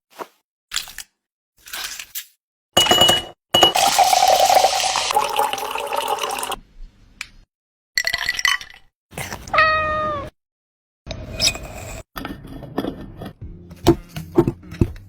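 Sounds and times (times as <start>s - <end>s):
cat meowing: 9.4s - 10.4s.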